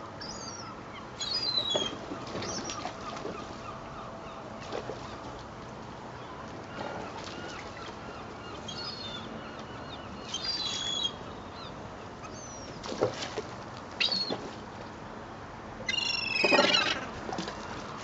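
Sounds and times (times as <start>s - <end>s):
seagulls calling: 0.2s - 5.2s, 6.7s - 12.8s, 14.0s - 14.4s.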